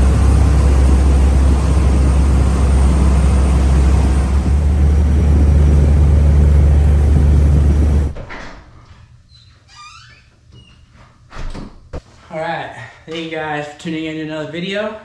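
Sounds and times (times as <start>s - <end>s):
boat engine running: 0.0s - 8.2s.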